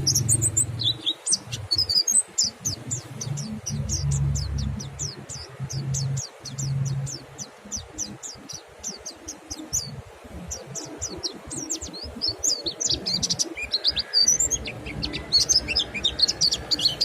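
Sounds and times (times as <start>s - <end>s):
birds chirping: 0.0s - 17.0s
steady low hum: 2.6s - 8.6s.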